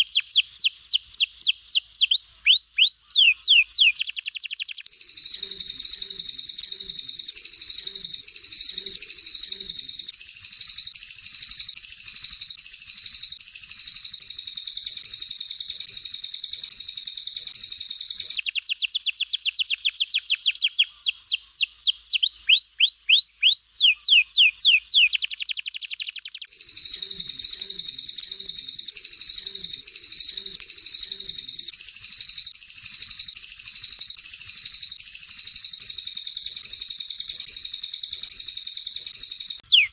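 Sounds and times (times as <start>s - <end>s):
songbird high rapid trill: 0.0s - 39.9s.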